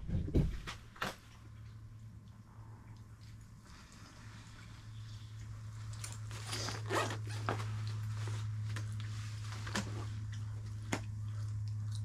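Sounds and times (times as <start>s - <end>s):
steady low hum: 0.0s - 12.0s
rustling: 3.2s - 12.0s
zipper rasping: 6.3s - 7.8s.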